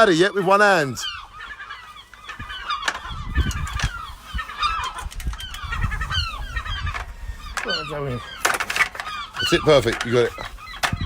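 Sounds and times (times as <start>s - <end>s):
gulls calling: 0.0s - 11.0s
low rumble on microphone: 2.4s - 8.4s.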